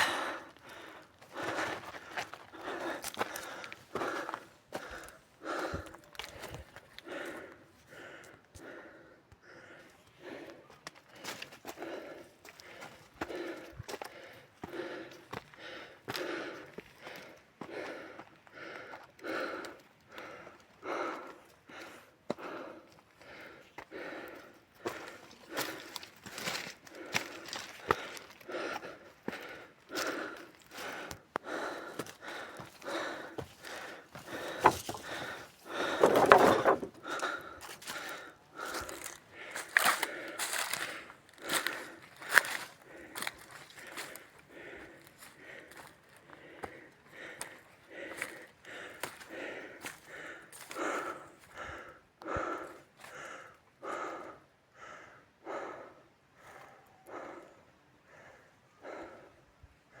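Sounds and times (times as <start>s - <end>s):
person panting: 0.0s - 60.0s
footsteps crunching through brush: 33.4s - 37.0s, 37.6s - 44.3s.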